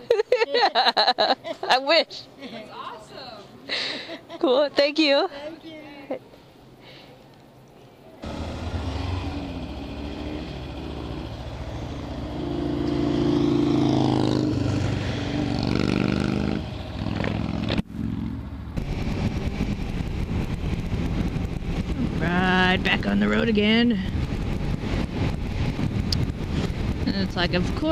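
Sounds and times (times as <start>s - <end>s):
motorcycle engine accelerating: 8.2s - 27.9s.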